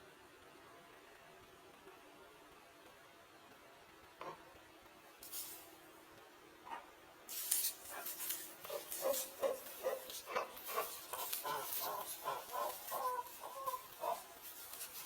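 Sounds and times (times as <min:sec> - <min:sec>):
rustling: 0:05.2 - 0:05.7, 0:07.3 - 0:15.0
chicken clucking: 0:08.7 - 0:15.0.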